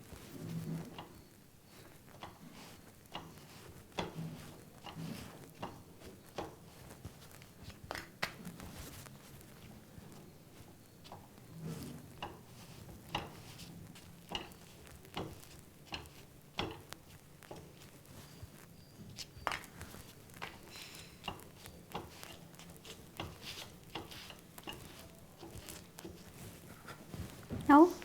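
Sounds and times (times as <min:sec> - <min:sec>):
papad crackling on hot pan: 0:00.0 - 0:28.0.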